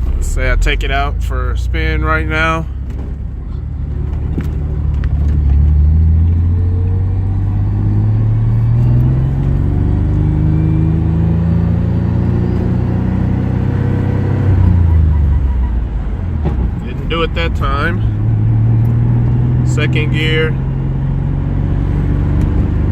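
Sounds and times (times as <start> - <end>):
car engine accelerating: 0.0 - 22.9.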